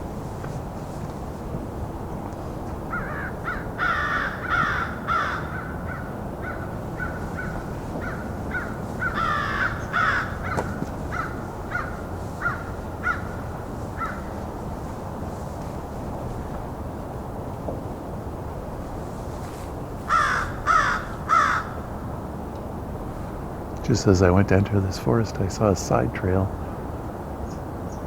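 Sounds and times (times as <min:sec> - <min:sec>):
crows cawing: 0:02.9 - 0:14.4, 0:20.1 - 0:21.9.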